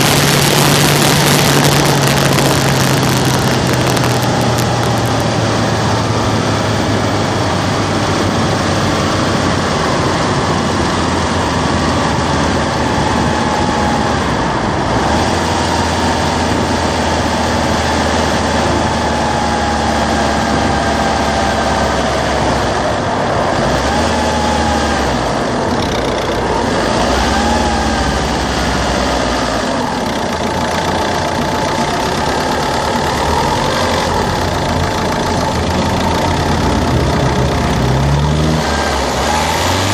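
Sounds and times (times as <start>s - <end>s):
faint whine: 0.0s - 7.9s
diesel engine running: 0.0s - 39.9s.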